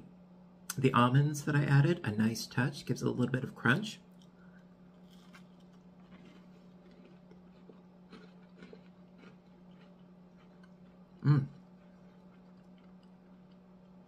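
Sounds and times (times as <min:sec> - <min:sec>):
low steady hum: 0:00.0 - 0:14.0
chewing cookie with crunchy clicks: 0:04.1 - 0:14.0.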